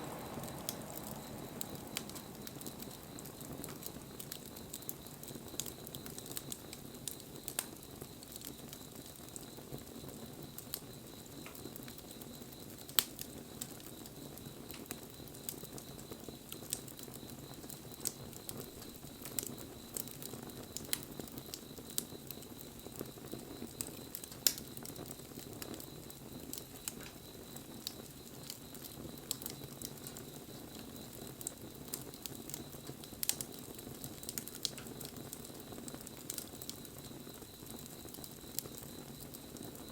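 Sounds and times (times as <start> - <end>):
campfire crackling: 0.0 - 39.9
fire pops and snaps: 0.0 - 39.9.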